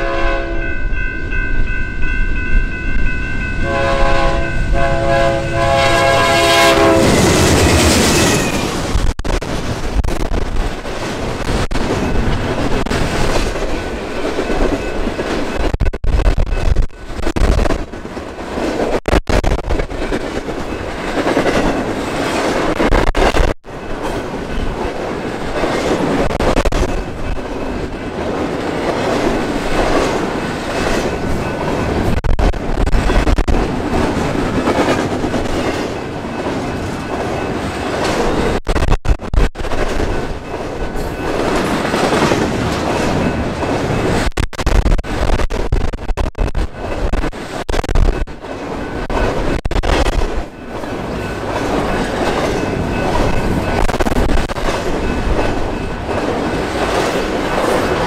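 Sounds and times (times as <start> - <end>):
train wheels clattering: 48.2 - 58.0.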